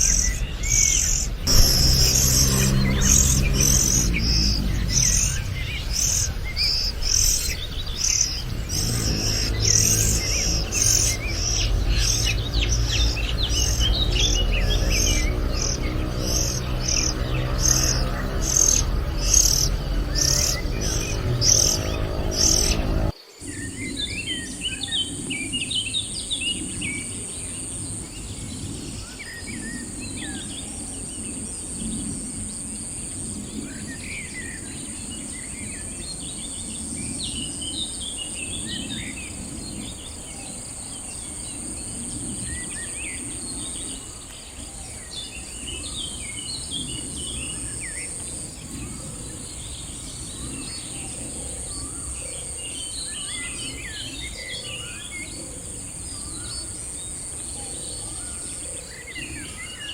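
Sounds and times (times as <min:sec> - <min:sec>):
low outdoor rumble: 0:00.0 - 0:23.2
high insect drone: 0:00.0 - 0:23.5
bird chirps: 0:00.0 - 0:27.6.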